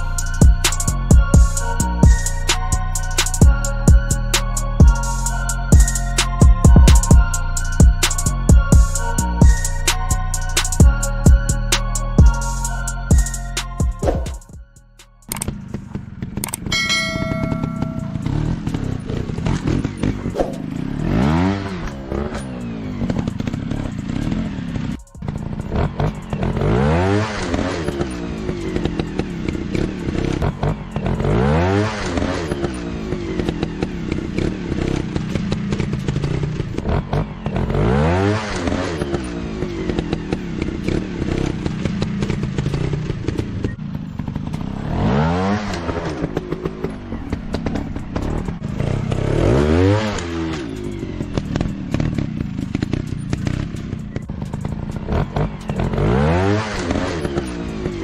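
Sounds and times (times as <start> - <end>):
motocross bike engine revving: 15.3 - 58.0.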